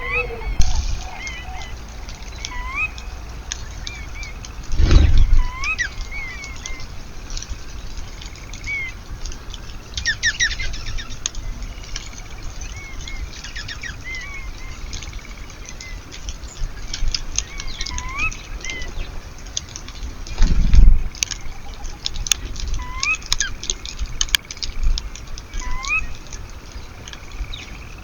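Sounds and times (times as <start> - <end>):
bird trill: 0.0 - 4.4
small birds chirping: 0.0 - 28.0
wings flapping: 4.4 - 6.8.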